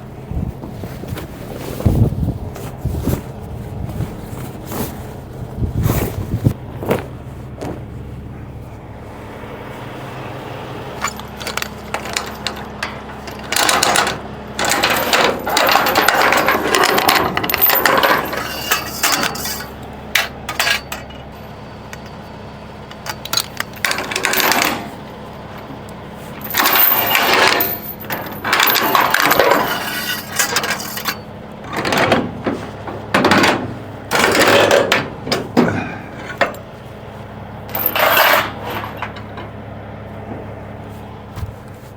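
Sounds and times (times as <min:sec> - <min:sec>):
steady low hum: 0:00.0 - 0:41.9
chains clinking and clanking: 0:11.0 - 0:25.0, 0:26.4 - 0:32.2, 0:33.1 - 0:36.7, 0:37.7 - 0:39.5.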